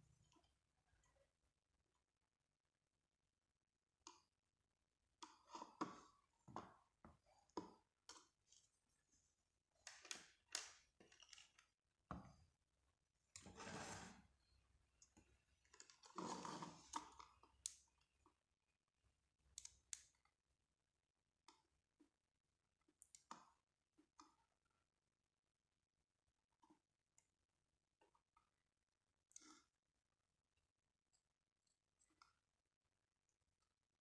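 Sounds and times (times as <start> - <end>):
objects scraping: 13.4 - 14.3.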